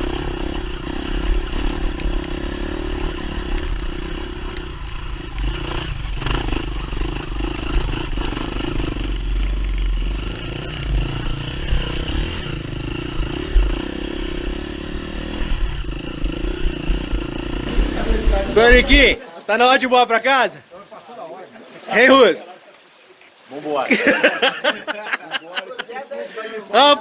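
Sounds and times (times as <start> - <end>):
dirt bike engine running: 0.0 - 19.2.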